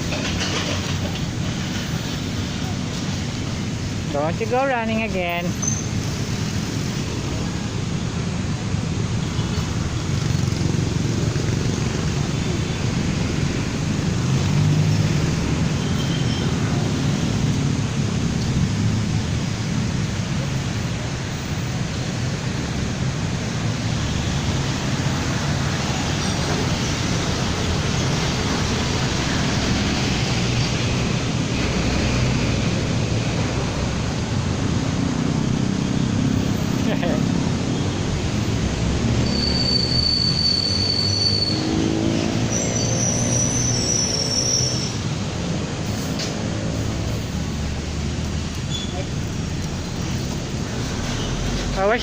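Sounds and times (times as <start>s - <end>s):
road traffic rumble: 0.0s - 52.0s.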